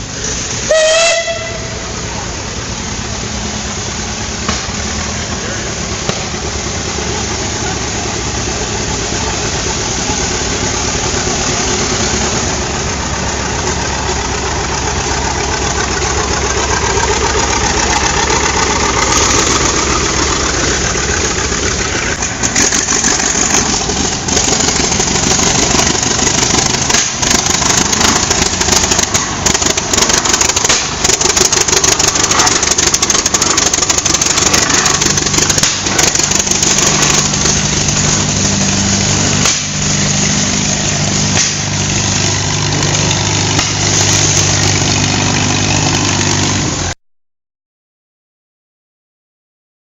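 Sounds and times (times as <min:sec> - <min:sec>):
tractor engines driving past: 0:00.0 - 0:47.0
sharp clicks and pops: 0:18.0 - 0:38.7.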